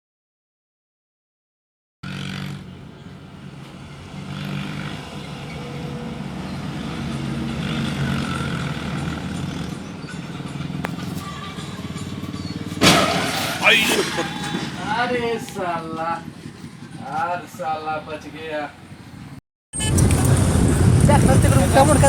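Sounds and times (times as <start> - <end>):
tractor diesel engine running: 2.0 - 22.0
loud crashing bang: 12.8 - 15.4.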